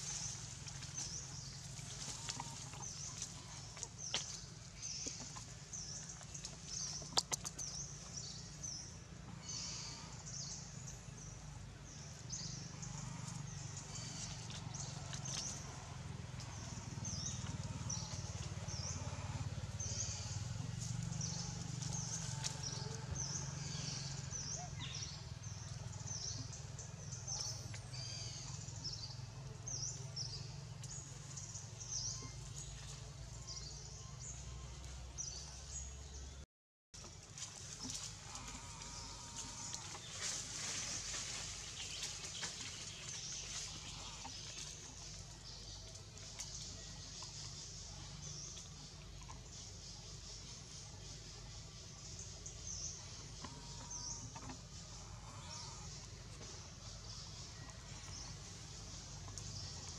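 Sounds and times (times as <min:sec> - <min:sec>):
steady low rumble: 0:00.0 - 0:35.6.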